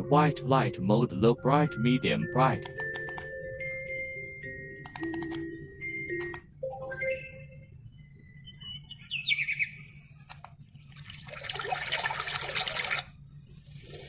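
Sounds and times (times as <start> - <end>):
faint steady hum: 0.0 - 14.0
recorded bird chirps: 5.4 - 11.0
recorded water sound: 10.9 - 14.0.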